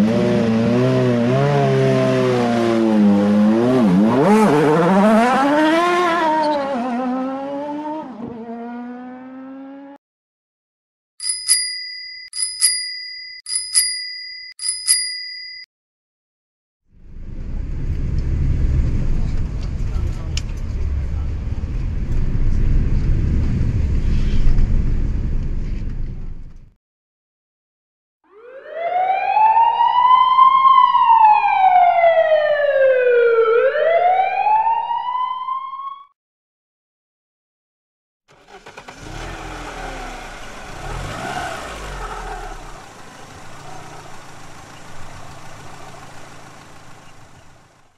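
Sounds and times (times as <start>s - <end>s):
engine rising in pitch: 0.0s - 10.0s, 38.3s - 47.9s
bicycle bell double ring: 11.2s - 15.7s
emergency siren wailing: 28.3s - 36.1s.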